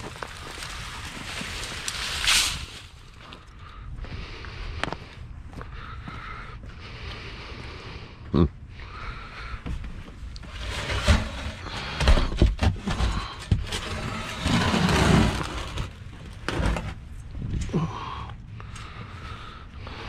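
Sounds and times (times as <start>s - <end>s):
scrap metal clatter: 10.5s - 15.9s.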